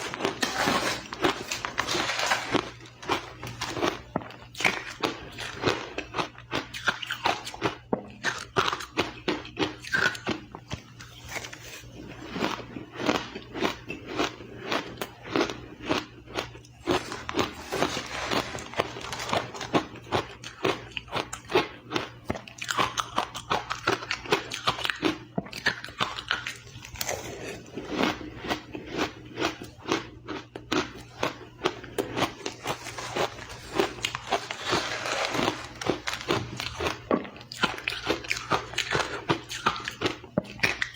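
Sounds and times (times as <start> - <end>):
crushed ice being chewed: 0.0 - 40.9.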